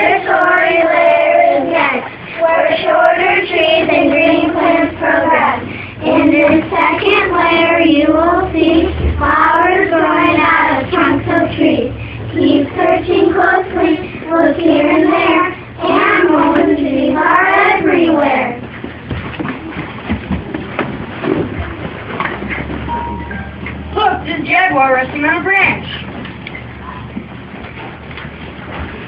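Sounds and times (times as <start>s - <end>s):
children singing: 0.0s - 18.6s.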